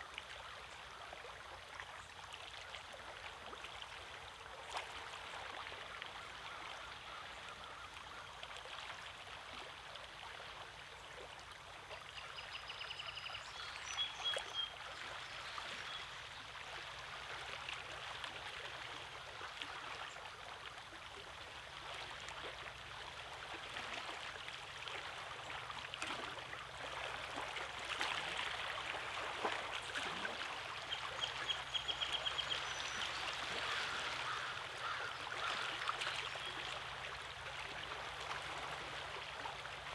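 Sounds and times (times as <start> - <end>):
small waves lapping on rocks: 14.2 - 39.9.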